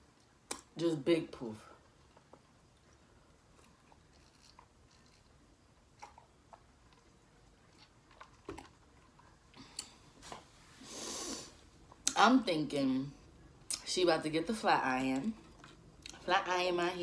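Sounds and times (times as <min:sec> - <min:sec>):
chewing food: 0:02.0 - 0:10.0, 0:15.2 - 0:16.3.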